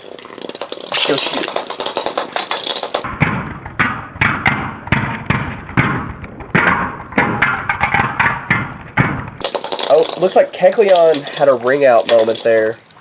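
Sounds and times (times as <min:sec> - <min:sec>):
spinning tops clashing: 0:00.0 - 0:03.2, 0:06.6 - 0:13.0.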